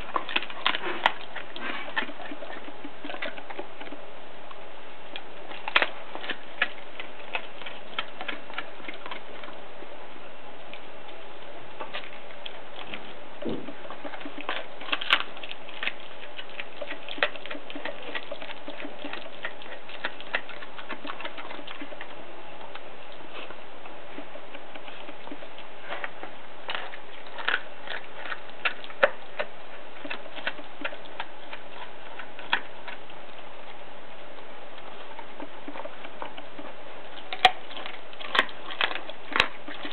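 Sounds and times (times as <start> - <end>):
dog chewing bones: 0.0 - 39.9.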